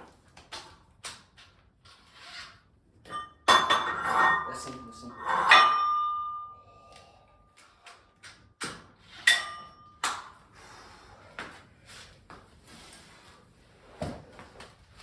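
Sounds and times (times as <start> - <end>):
barbell weight plates clanking: 3.2 - 6.6.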